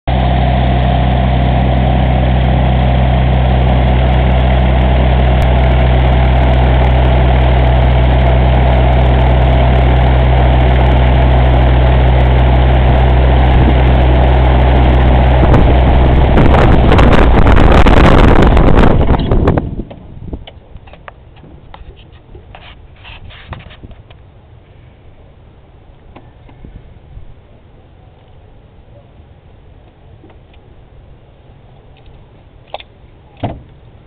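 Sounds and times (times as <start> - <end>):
propeller engine idling: 0.1 - 19.9.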